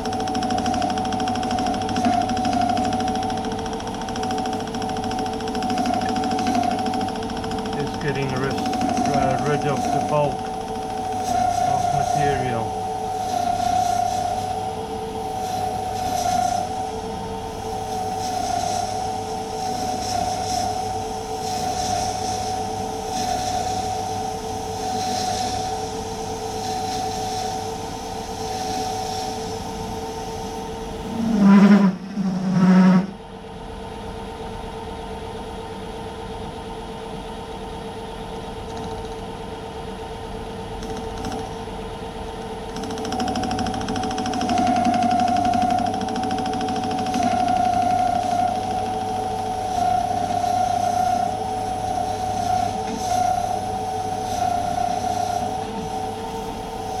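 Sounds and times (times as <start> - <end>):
lathe whining: 0.0 - 30.0, 42.6 - 57.0
lathe cutting metal: 7.7 - 14.1, 44.4 - 55.9.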